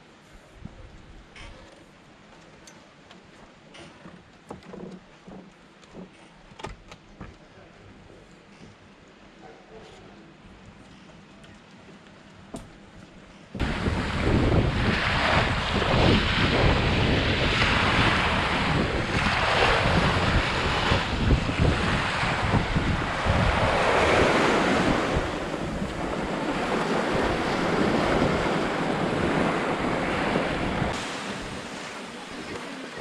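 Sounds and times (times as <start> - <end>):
ocean surf breaking: 13.6 - 33.0
wind buffeting microphone: 13.6 - 33.0.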